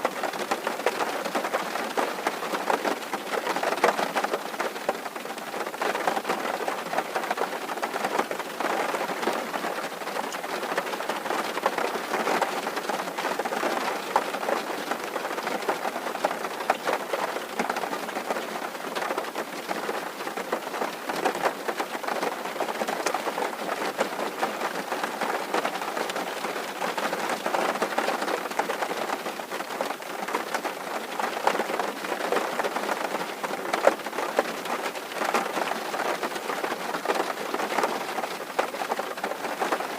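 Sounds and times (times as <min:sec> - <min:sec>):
rain on a tin roof: 0:00.0 - 0:39.9.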